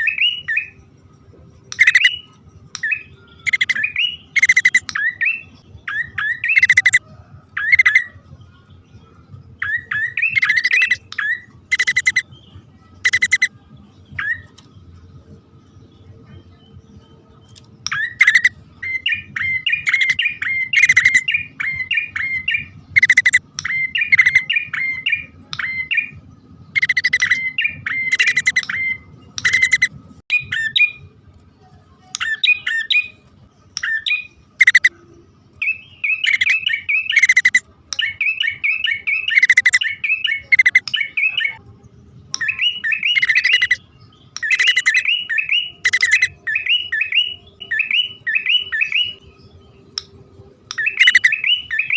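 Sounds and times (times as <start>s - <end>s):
faint low hum: 0.0s - 51.9s
bird chattering calls: 1.7s - 2.2s, 3.4s - 5.0s, 6.0s - 7.0s, 9.9s - 12.3s, 13.0s - 13.5s, 17.9s - 25.9s, 26.7s - 30.9s, 33.8s - 35.0s, 36.0s - 37.6s, 38.2s - 41.6s, 42.4s - 43.8s, 44.4s - 49.2s, 50.7s - 51.9s.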